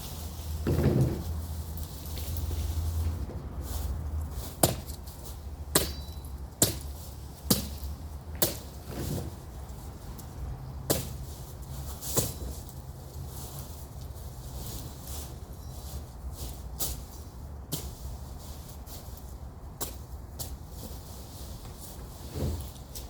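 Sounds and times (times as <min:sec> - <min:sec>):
machete chopping brush: 0:04.6 - 0:06.9, 0:07.5 - 0:08.7.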